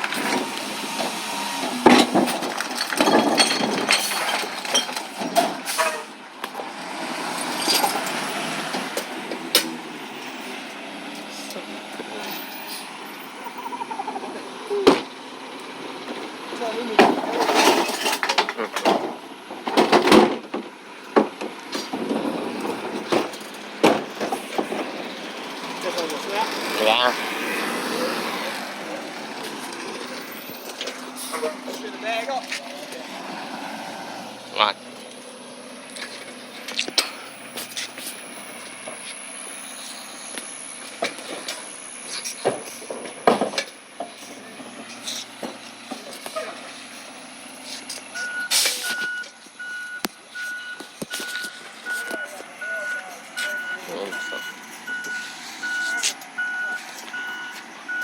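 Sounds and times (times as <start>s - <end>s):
hard junk knocking and clattering: 0.0s - 6.7s, 15.9s - 26.4s, 42.3s - 44.8s
recycling truck running: 0.0s - 58.0s.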